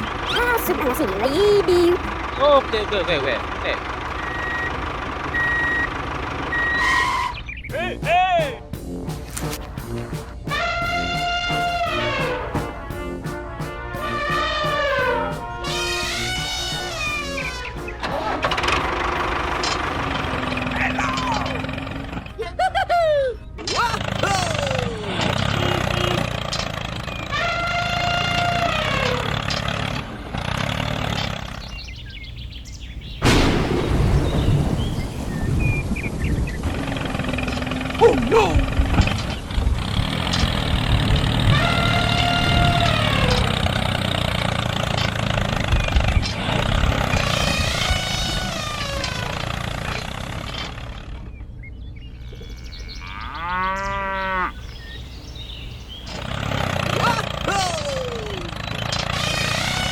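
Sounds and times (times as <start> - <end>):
small engine running: 0.0 - 7.4, 17.0 - 22.4, 23.9 - 32.0, 36.7 - 51.4, 55.0 - 59.9
drawn-out rising and falling call: 4.1 - 7.8, 24.6 - 59.9
sudden loud noise: 33.2 - 36.0
sliding whines: 47.0 - 51.0, 58.0 - 59.9.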